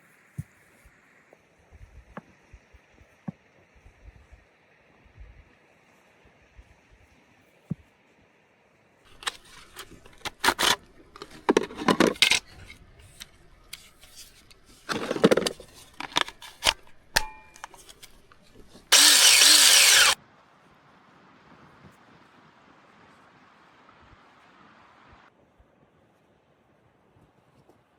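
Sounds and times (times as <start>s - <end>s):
clinks and knocks of gear: 9.1s - 20.2s.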